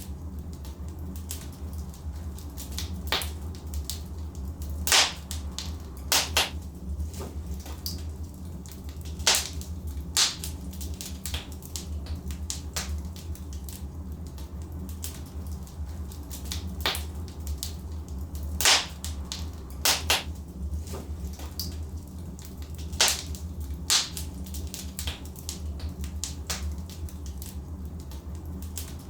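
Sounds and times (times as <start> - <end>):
wood fire crackling: 0.0 - 29.0
logs popping and snapping: 4.9 - 6.6, 18.6 - 20.3, 22.8 - 24.3.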